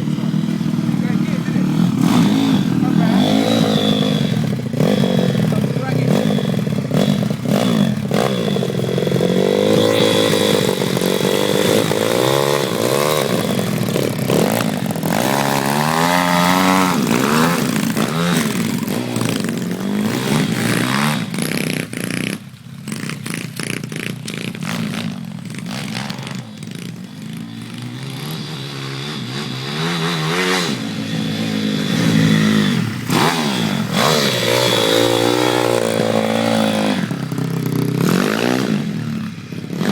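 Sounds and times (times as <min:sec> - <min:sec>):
pit bike engines revving: 0:00.0 - 0:39.9.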